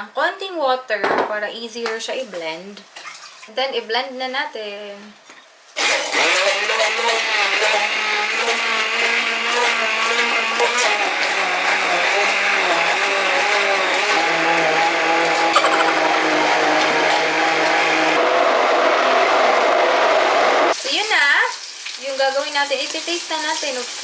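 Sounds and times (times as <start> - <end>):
blender motor whining: 5.8 - 20.8.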